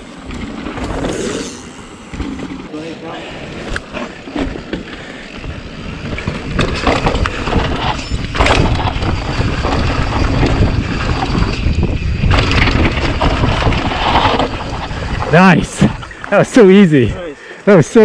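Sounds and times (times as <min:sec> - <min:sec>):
tyres on dirt and rock: 0:00.0 - 0:16.9
bike rattling and knocking: 0:03.5 - 0:15.4
wind buffeting microphone: 0:05.4 - 0:16.2.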